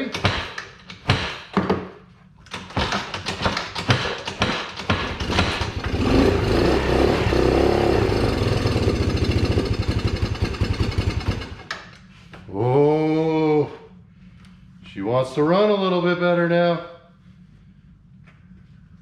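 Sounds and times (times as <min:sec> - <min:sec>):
engine cranking and sputtering: 0:02.5 - 0:11.8.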